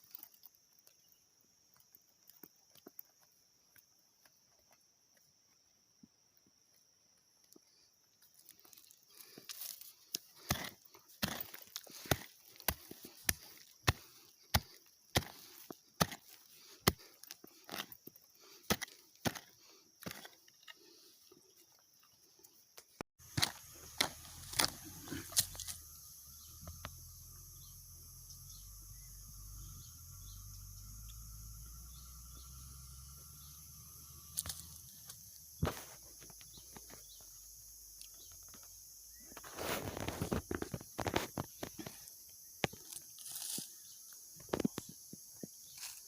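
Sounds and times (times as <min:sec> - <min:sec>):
insects buzzing: 0:00.0 - 0:46.0
thin insect whine: 0:00.0 - 0:46.0
digging tool striking earth: 0:10.1 - 0:20.4, 0:23.2 - 0:26.0, 0:34.4 - 0:37.2.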